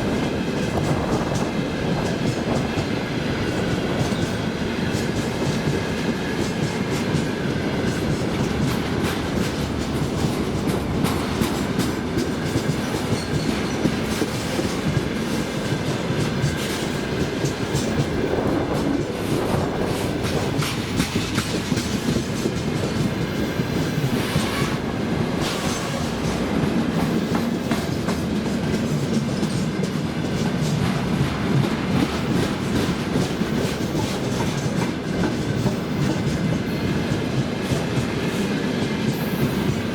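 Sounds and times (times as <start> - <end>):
freight train wheels rumbling: 0.0 - 39.9
wheels clicking over rail joints: 4.9 - 24.8.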